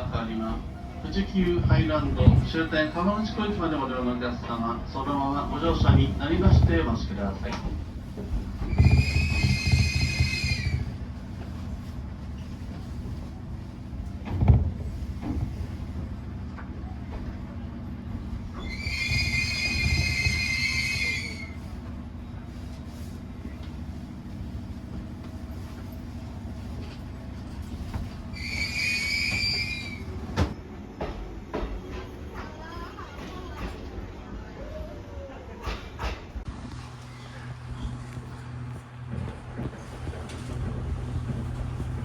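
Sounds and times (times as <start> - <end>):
train rumbling on track: 0.0 - 42.0
train wheels squealing: 8.6 - 11.0, 18.5 - 21.7, 28.3 - 30.3.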